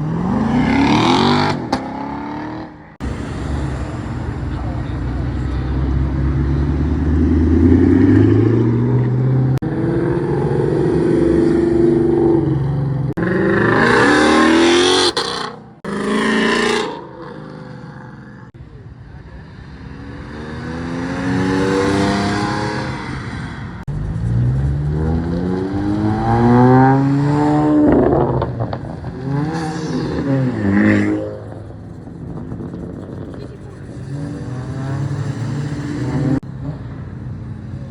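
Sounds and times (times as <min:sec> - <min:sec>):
car engines accelerating and revving: 0:00.0 - 0:37.9
loud rushing noise: 0:03.0 - 0:05.2.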